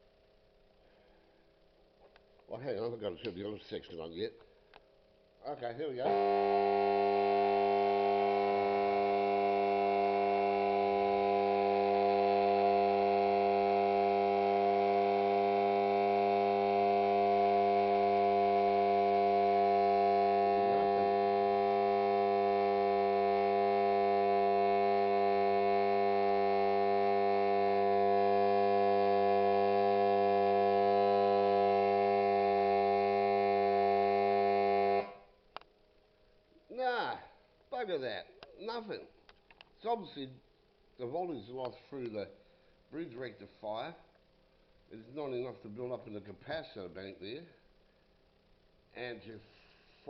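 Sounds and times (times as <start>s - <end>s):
transformer humming: 5.9s - 35.2s.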